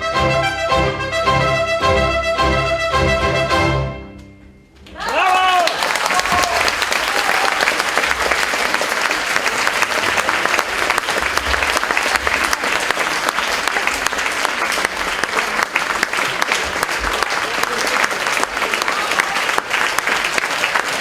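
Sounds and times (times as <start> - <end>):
audience applauding: 5.0 - 21.0.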